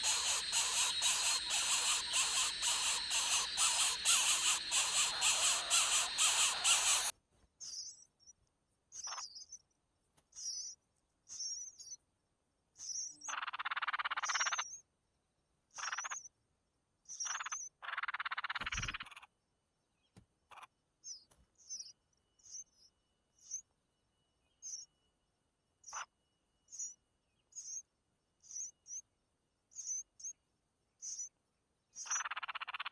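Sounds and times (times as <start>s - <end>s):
harsh rasping bird calls: 0.0s - 7.1s, 32.0s - 32.9s
bird chirping: 0.0s - 12.0s, 12.8s - 14.8s, 17.1s - 19.0s, 20.0s - 25.1s, 25.8s - 29.1s, 29.7s - 30.4s, 31.0s - 32.9s.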